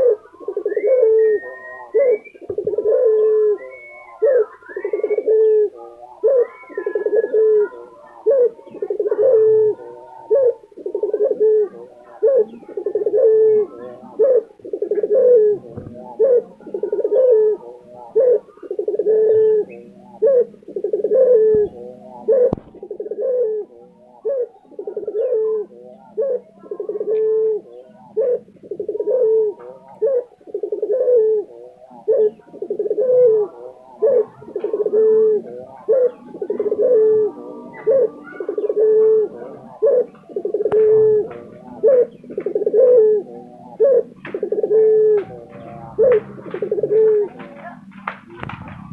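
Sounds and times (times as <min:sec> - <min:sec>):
dove cooing: 0:00.0 - 0:48.9.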